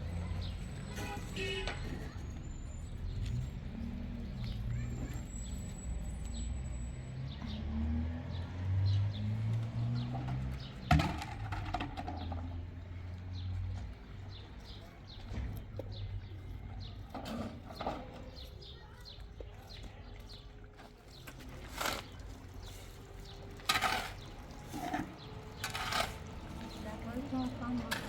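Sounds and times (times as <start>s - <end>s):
small birds chirping: 12.2s - 28.0s.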